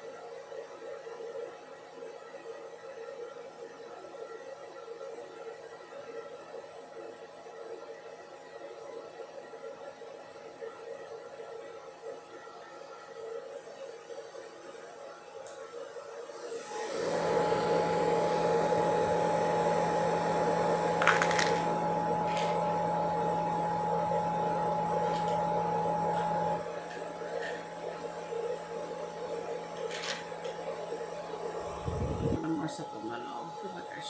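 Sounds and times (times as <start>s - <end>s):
appliance motor humming: 16.7s - 34.0s.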